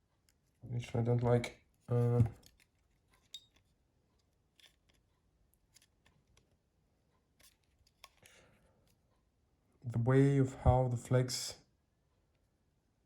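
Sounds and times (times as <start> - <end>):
small phone parts clicking: 2.4 - 3.7, 7.4 - 8.3.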